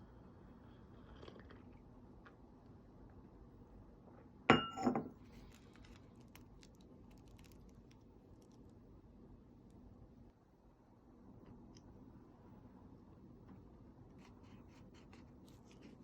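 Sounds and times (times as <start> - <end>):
tableware clinking: 4.5 - 5.2.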